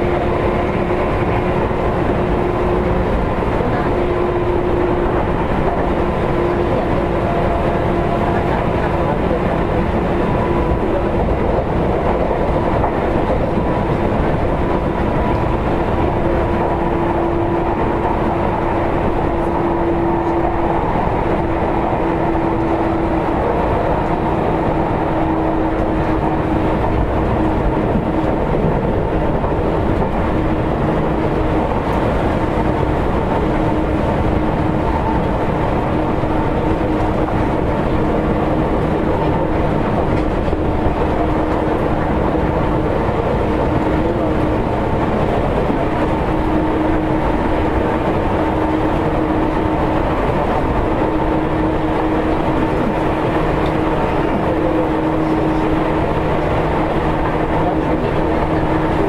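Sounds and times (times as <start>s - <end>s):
train motor hum: 0.0s - 59.0s
train wheels rumbling on rail: 0.0s - 59.0s.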